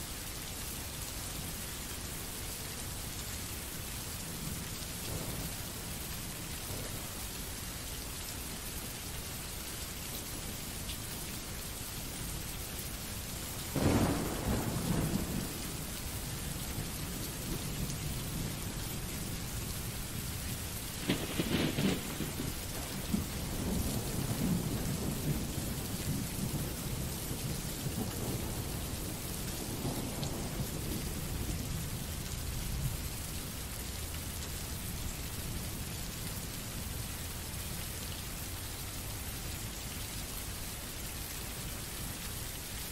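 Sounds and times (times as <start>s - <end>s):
steady rain: 0.0s - 42.9s
thunder rolling: 13.8s - 16.0s, 21.0s - 27.0s.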